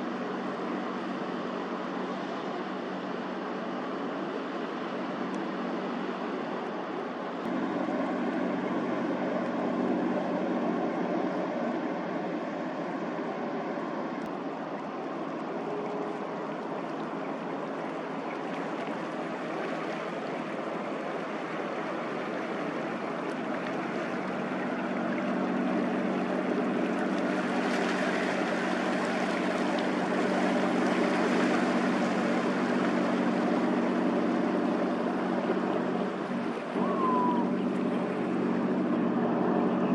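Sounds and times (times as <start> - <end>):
boat engine drone: 0.0 - 39.9
rushing water: 10.9 - 39.9.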